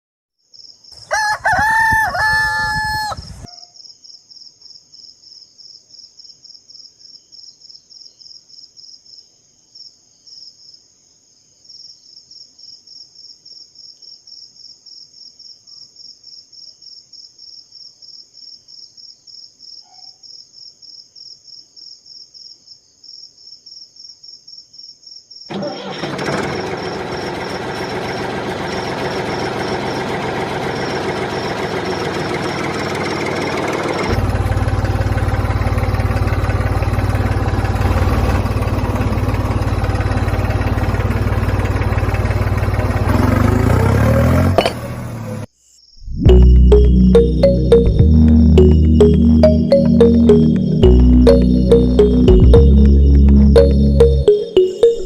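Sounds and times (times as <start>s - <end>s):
small engine starting and running: 1.0s - 3.4s, 25.5s - 45.5s, 46.3s - 55.0s
rooster crowing: 1.0s - 3.7s.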